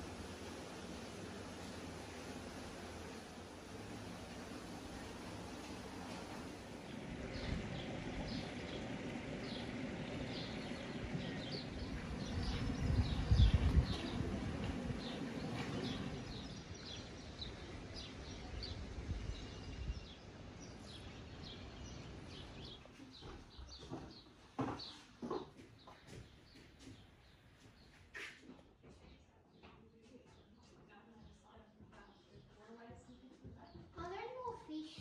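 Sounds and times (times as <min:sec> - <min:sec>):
outdoor hiss: 0:00.0 - 0:19.4
small birds chirping: 0:04.8 - 0:28.3.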